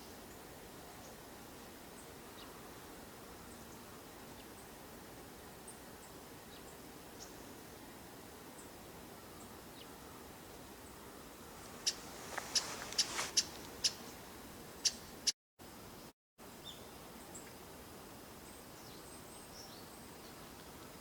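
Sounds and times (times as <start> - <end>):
background hiss: 0.0 - 21.0
bird sharp high calls: 11.7 - 14.0.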